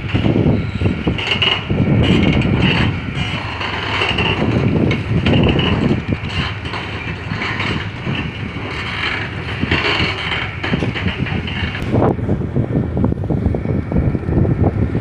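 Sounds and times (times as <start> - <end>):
ship engines rumbling: 0.0 - 15.0.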